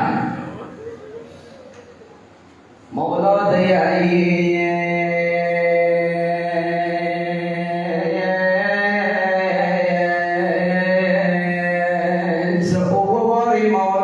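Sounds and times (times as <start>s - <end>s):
steady low hum: 0.0s - 14.0s
man chanting a wailing lament: 2.9s - 14.0s.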